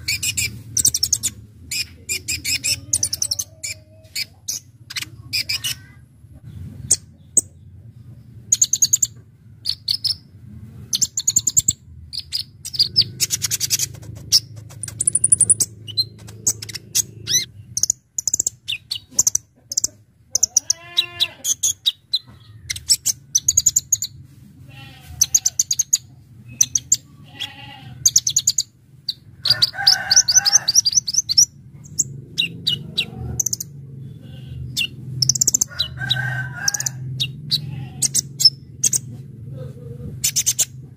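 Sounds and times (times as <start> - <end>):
bird chirping and trilling: 0.0 - 6.0, 8.5 - 10.3, 11.0 - 24.2, 24.9 - 39.1, 40.2 - 40.8
steady low hum: 4.5 - 21.4, 25.8 - 40.9
drawn-out bird calls: 12.2 - 23.6, 24.7 - 40.9.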